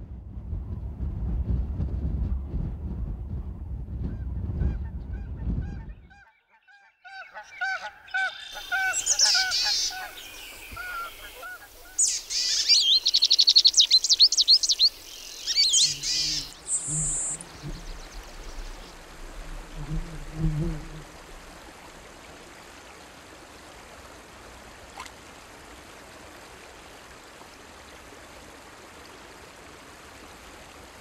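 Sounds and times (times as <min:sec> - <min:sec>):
low rumbling: 0:00.0 - 0:06.1
songbirds chirping and trilling: 0:05.6 - 0:19.1
geese honking: 0:06.1 - 0:12.5.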